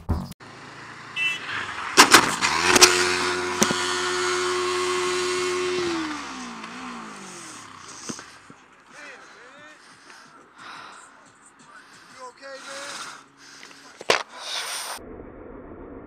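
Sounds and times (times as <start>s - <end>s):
motorcycle engine revving: 0.4s - 8.9s.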